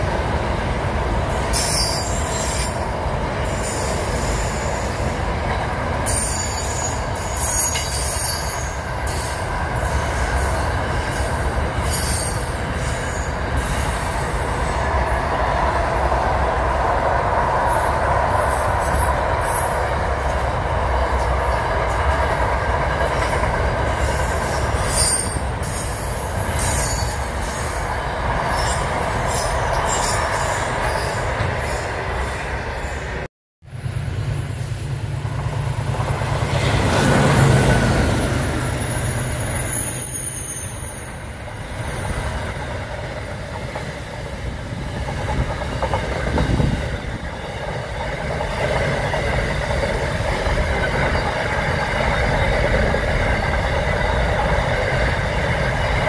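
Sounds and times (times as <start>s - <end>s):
freight train rumbling past: 0.0s - 56.0s
metallic wheel squeal: 1.5s - 2.9s, 6.0s - 9.3s, 24.8s - 27.7s, 37.3s - 42.4s.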